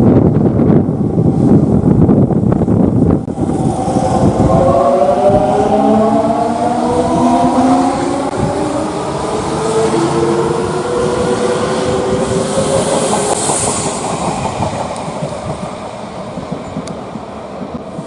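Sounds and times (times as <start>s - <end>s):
train wheels clacking on rails: 10.2s - 18.0s.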